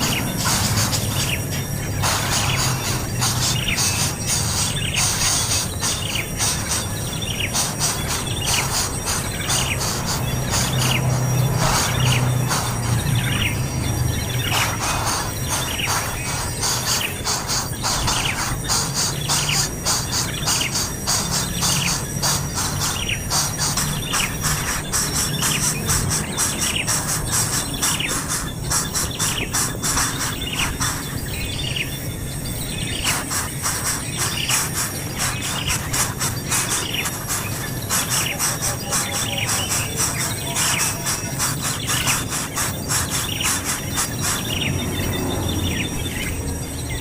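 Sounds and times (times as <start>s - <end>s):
dense fast clicking: 0.0s - 31.9s
baby bird chirping: 0.0s - 47.0s.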